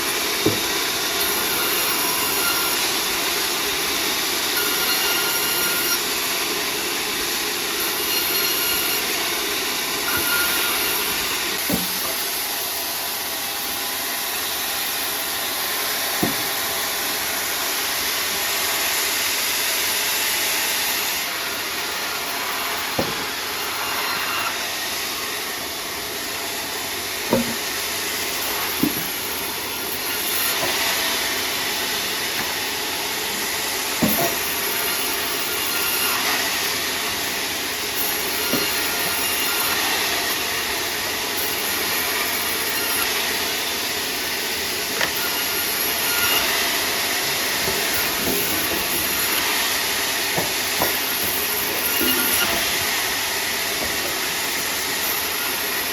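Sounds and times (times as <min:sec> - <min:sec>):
sawmill saw cutting timber: 0:00.0 - 0:55.9.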